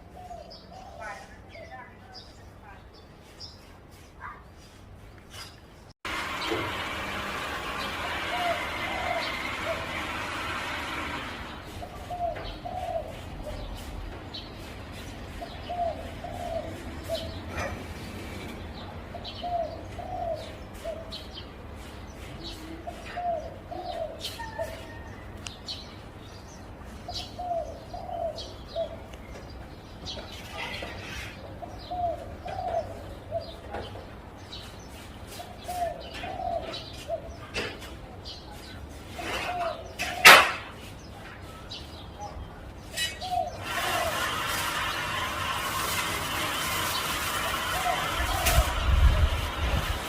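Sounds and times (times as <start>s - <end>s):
small birds chirping: 0.0s - 6.6s, 11.6s - 45.1s
dove cooing: 8.2s - 10.2s, 11.8s - 13.7s, 15.4s - 17.8s, 22.5s - 25.1s, 27.4s - 29.0s, 31.6s - 33.7s, 35.4s - 37.4s, 47.4s - 49.2s.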